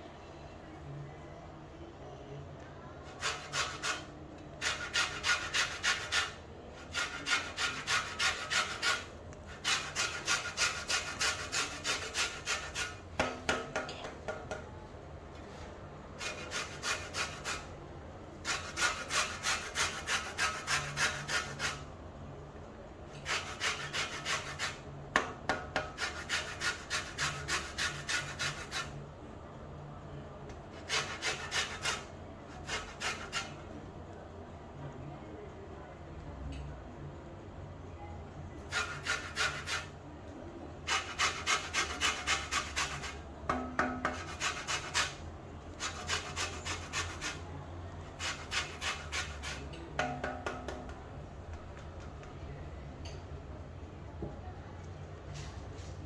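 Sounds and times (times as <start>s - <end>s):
peel rasping on hand grater: 3.2s - 13.0s, 16.2s - 17.7s, 18.4s - 21.8s, 23.2s - 24.8s, 25.8s - 28.9s, 30.8s - 33.6s, 38.7s - 39.9s, 40.9s - 43.2s, 44.1s - 45.2s, 45.8s - 47.4s, 48.2s - 49.7s.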